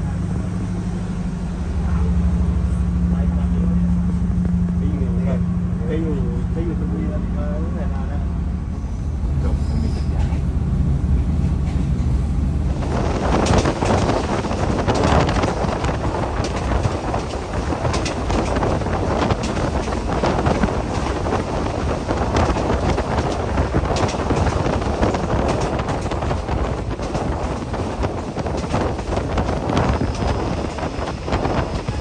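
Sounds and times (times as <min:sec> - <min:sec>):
train rumbling: 0:00.0 - 0:32.0
wind buffeting microphone: 0:10.3 - 0:32.0.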